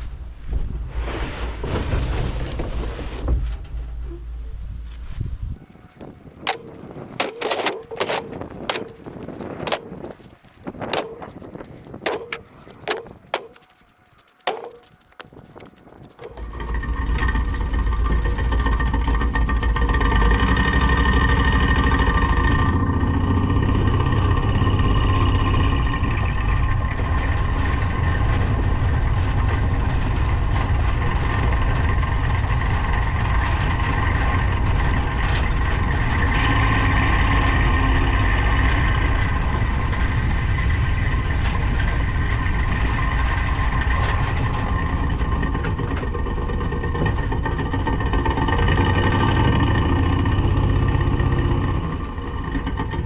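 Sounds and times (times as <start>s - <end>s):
utility vehicle engine running: 5.6s - 36.3s.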